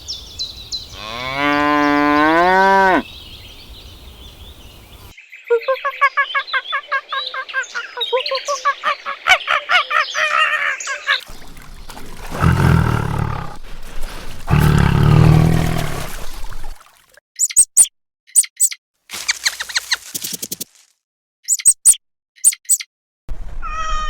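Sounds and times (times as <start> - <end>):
animal chirping calls: 5.5 - 11.2, 21.5 - 22.8
deep animal roars: 12.0 - 16.7.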